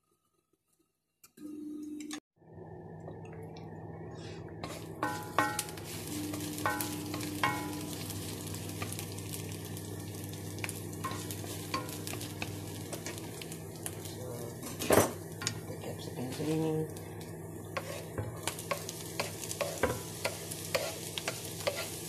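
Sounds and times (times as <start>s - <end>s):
onions sizzling in a frying pan: 4.6s - 22.0s.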